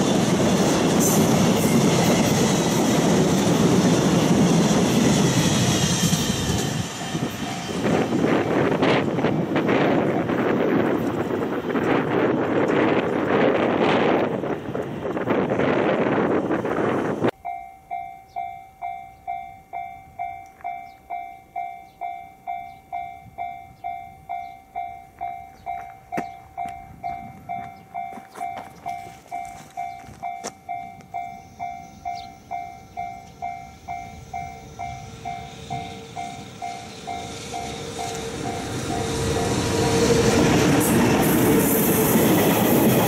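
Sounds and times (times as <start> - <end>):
train approaching: 0.0 - 43.0
level crossing bell ringing: 17.3 - 39.6.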